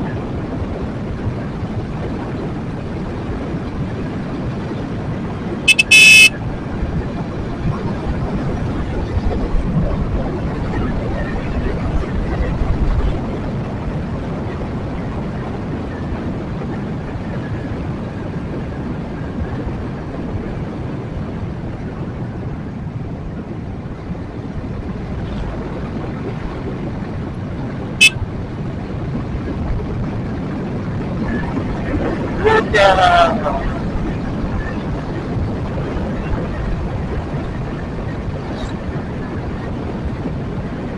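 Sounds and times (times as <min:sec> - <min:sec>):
road and wind noise: 0:00.0 - 0:40.9.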